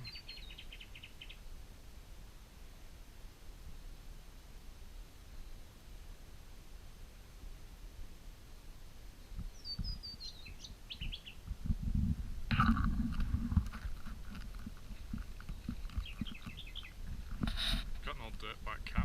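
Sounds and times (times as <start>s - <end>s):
bird chirping: 0.0s - 1.5s, 9.2s - 11.5s, 14.9s - 18.6s
rustling and knocking from handling: 12.5s - 18.0s.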